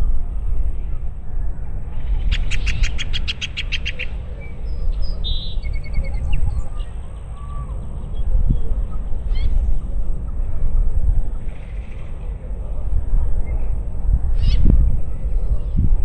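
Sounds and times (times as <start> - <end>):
low rumble of wind: 0.0 - 16.0
birds chirping: 0.7 - 10.5.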